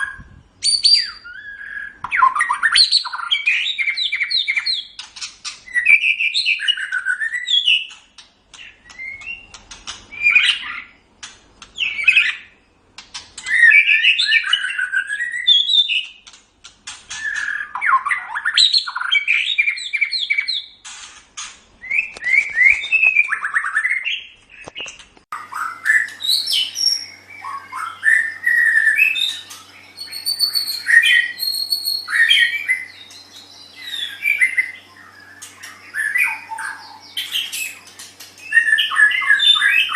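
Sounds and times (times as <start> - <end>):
bird singing whistled phrases: 0.0 - 4.9, 5.7 - 8.0, 13.4 - 16.1, 25.4 - 39.9
faint steady hum: 24.2 - 39.9.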